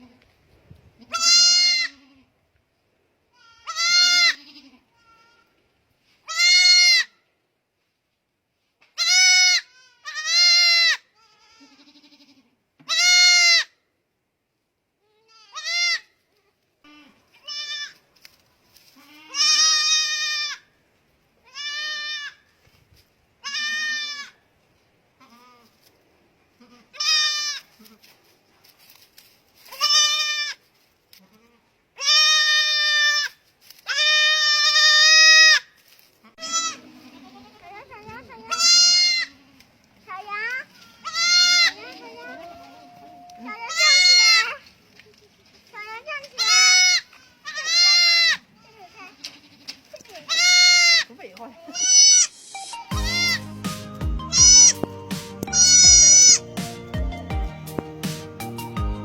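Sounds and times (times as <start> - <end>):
young goat bleating: 1.0 - 2.3, 3.3 - 5.6, 6.2 - 7.2, 9.0 - 13.8, 15.0 - 18.0, 18.9 - 20.7, 21.4 - 22.5, 23.4 - 24.4, 25.2 - 25.8, 26.5 - 28.2, 29.7 - 30.6, 31.2 - 44.7, 45.8 - 57.8.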